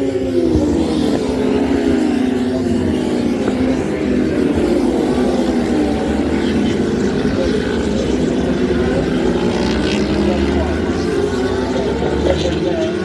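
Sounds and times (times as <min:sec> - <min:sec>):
racing motorcycle engines: 0:00.0 - 0:13.0.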